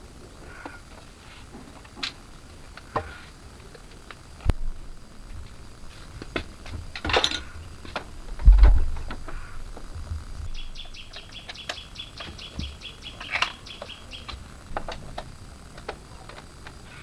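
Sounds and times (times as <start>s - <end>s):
light clicks and knocks: 6.2s - 16.8s
low thump: 8.3s - 10.5s
small bird chirping rapidly: 10.3s - 14.7s.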